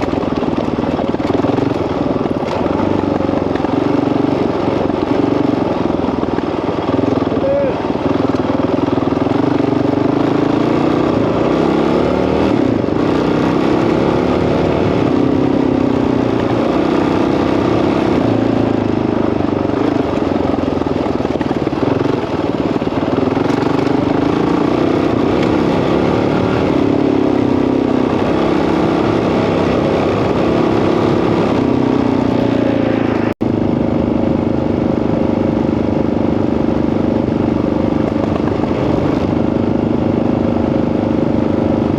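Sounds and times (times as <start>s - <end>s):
dirt bike engine revving: 0.0s - 33.4s.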